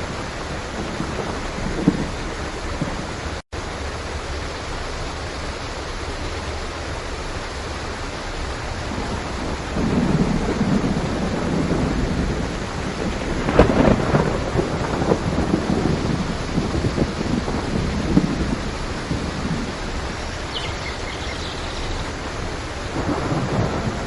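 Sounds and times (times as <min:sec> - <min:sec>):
rolling thunder: 0:00.0 - 0:03.2, 0:08.8 - 0:24.0
heavy rain: 0:00.0 - 0:24.0.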